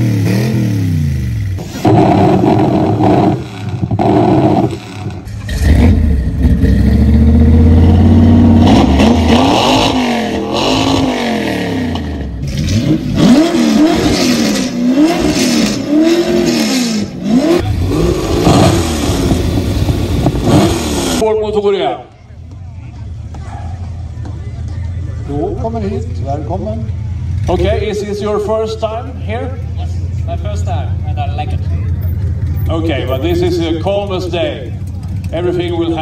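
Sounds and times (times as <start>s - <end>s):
car engine revving: 0.0s - 21.2s.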